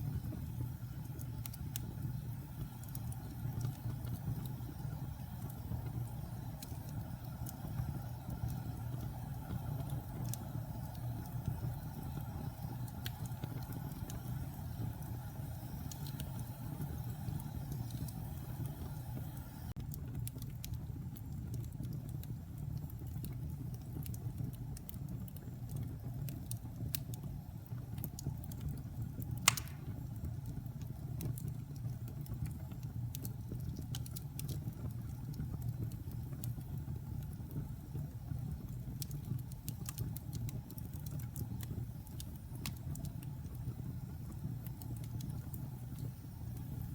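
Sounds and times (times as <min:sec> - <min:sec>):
fire crackling: 0:00.0 - 0:46.9
loud pop from fire: 0:29.4 - 0:30.1.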